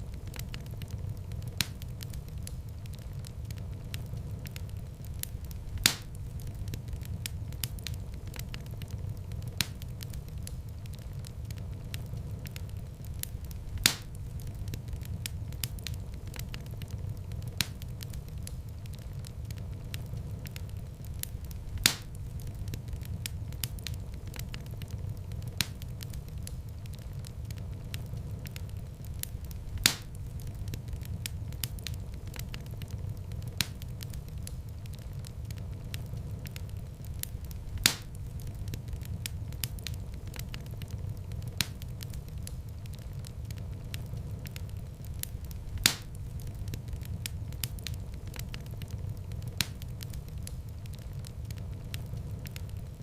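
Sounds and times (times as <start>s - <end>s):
fireplace fire crackling: 0.0s - 53.0s
loud fire pop: 5.8s - 6.2s, 13.8s - 14.2s, 21.8s - 22.2s, 29.8s - 30.2s, 37.8s - 38.2s, 45.8s - 46.2s.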